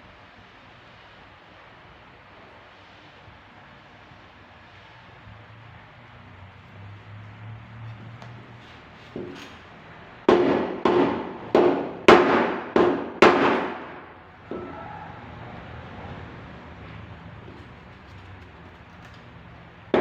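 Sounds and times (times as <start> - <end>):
hammer tapping sheet metal: 10.3 - 14.6.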